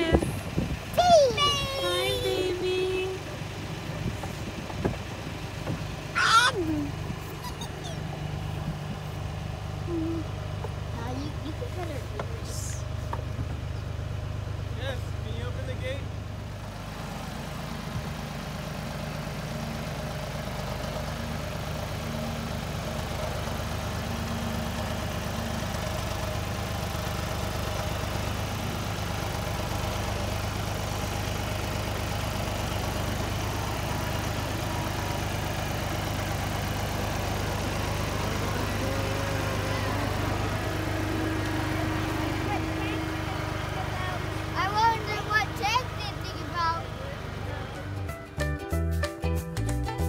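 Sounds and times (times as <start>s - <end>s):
vehicle engine humming: 0.0s - 50.0s.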